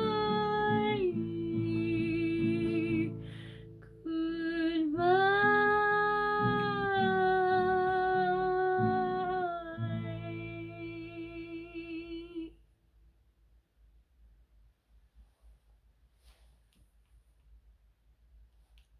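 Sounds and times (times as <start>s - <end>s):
plucked acoustic guitar: 0.0s - 3.6s.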